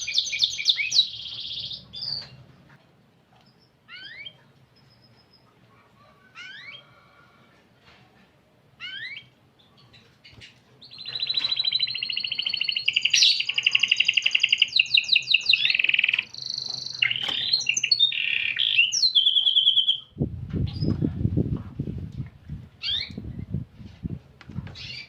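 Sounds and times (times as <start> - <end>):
canary singing trills: 0.0 - 2.5, 3.5 - 6.9, 8.8 - 21.0, 22.8 - 23.5, 24.8 - 25.0.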